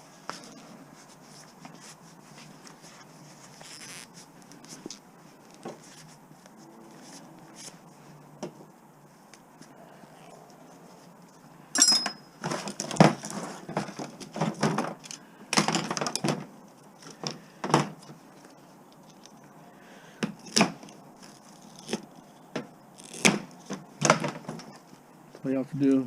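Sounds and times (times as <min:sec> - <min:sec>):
ringing metal strike: 0:11.7 - 0:12.4.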